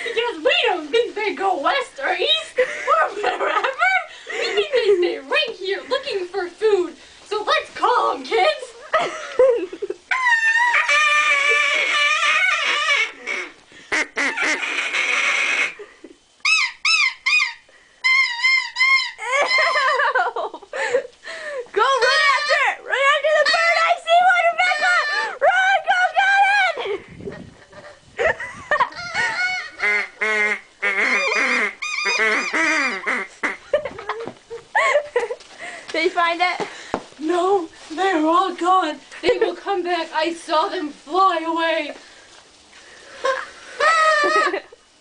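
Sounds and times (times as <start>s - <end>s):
children making bird calls: 21.8s - 26.7s, 31.0s - 33.2s
flock of geese honking: 29.2s - 33.6s.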